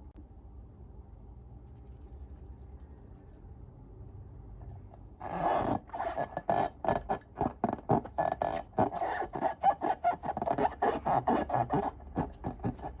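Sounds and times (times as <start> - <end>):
slime rubbing and scraping: 5.2 - 13.0.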